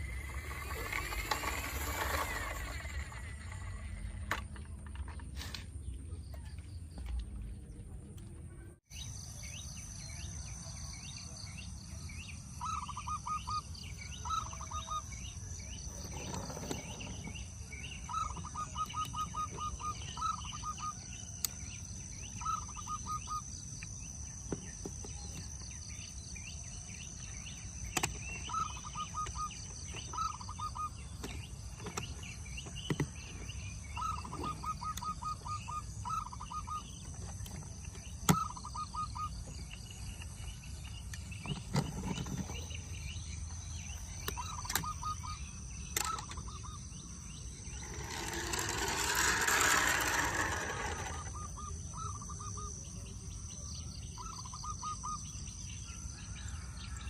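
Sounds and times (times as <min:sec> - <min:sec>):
steady high-pitched whine: 0:00.0 - 0:05.1
bird chirping: 0:05.8 - 0:57.0.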